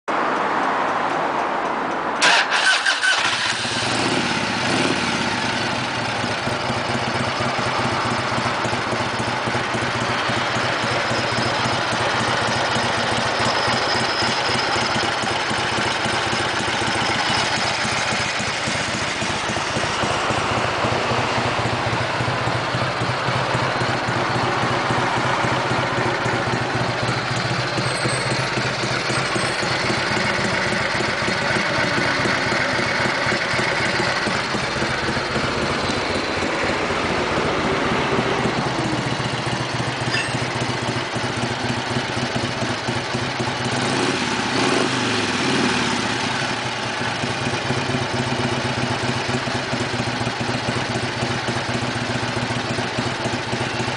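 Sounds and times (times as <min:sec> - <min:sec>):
motorcycle engine starting and idling: 0:02.2 - 0:53.9.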